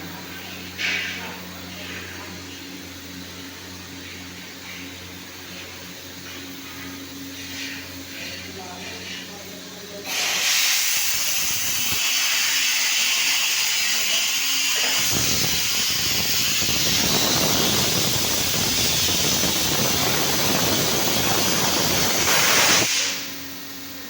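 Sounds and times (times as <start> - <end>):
steam hissing: 10.0 - 23.3.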